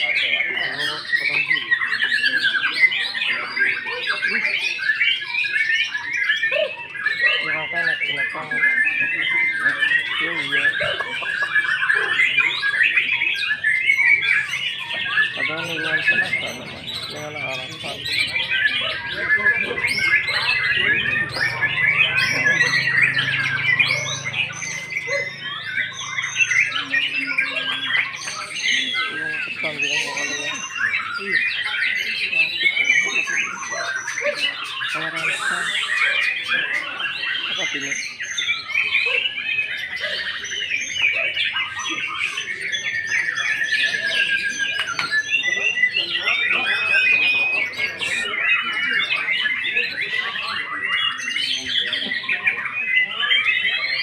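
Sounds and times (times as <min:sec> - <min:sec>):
bird singing rapid song: 0:00.0 - 0:54.0.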